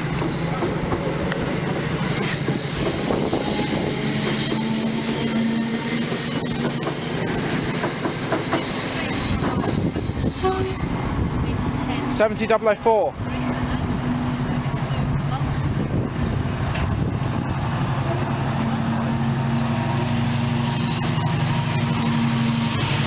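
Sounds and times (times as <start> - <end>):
train wheels clattering over track: 0.0 - 5.2, 5.9 - 10.4
diesel locomotive engine hum: 0.0 - 23.0
high wheel squeal: 1.9 - 12.0, 13.5 - 23.0.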